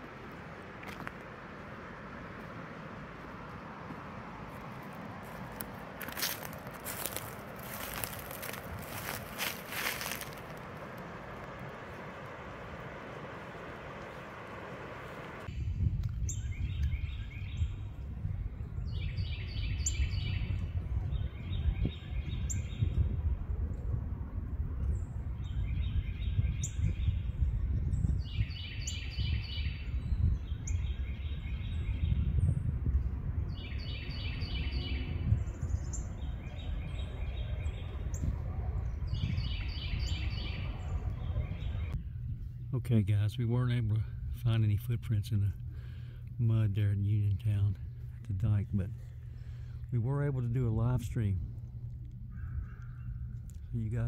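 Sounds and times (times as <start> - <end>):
steady low rumble: 0.0 - 54.0
songbird singing repeated phrase: 18.6 - 23.1, 25.4 - 32.5, 33.5 - 42.0.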